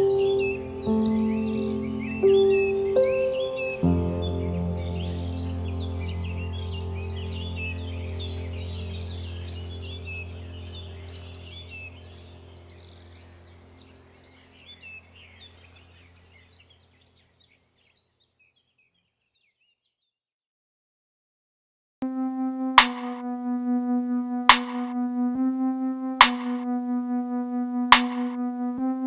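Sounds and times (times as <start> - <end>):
low drone music: 0.0 - 16.7, 22.0 - 29.0
birdsong chirping: 0.0 - 19.8.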